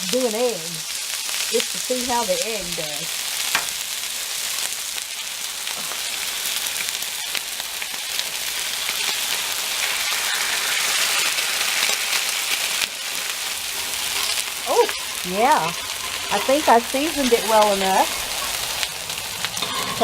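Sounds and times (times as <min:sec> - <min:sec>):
food sizzling on a griddle: 0:00.0 - 0:20.0.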